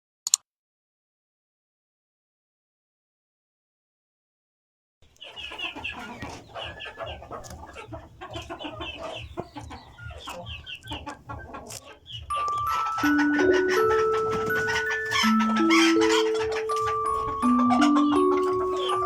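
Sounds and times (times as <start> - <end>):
chicks peeping: 5.0 - 19.0
hens clucking: 5.0 - 19.0
music with chiming tones: 12.1 - 19.0.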